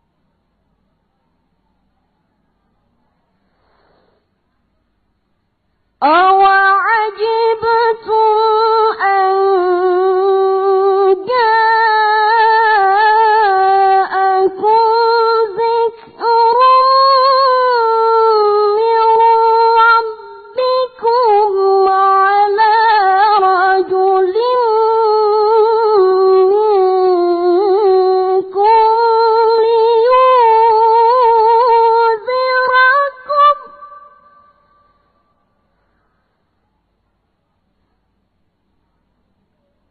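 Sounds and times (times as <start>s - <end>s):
boy reciting in melodic chant: 6.0s - 35.0s.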